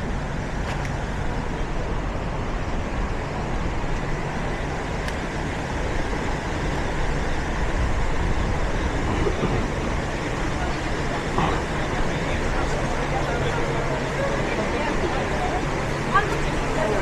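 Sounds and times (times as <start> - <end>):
road traffic: 0.0 - 17.0
low rumble: 5.8 - 13.2.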